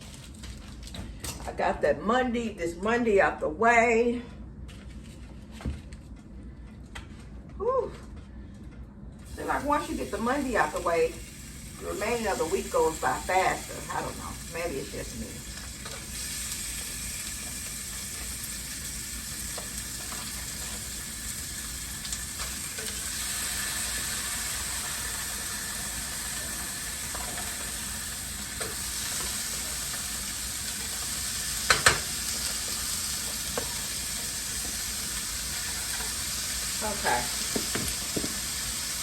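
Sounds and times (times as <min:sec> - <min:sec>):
patties sizzling in a frying pan: 0:09.3 - 0:39.0.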